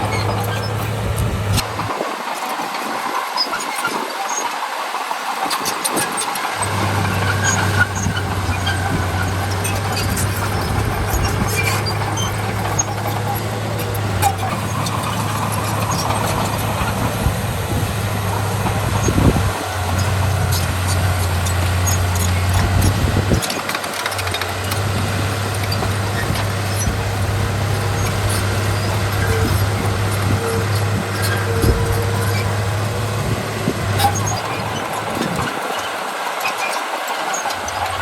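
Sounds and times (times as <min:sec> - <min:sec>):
metallic clanks and squeaks: 0:00.0 - 0:01.9, 0:05.4 - 0:38.0
low engine hum: 0:00.0 - 0:02.1, 0:06.5 - 0:36.6, 0:37.4 - 0:38.0
diesel machinery engines running: 0:00.0 - 0:38.0.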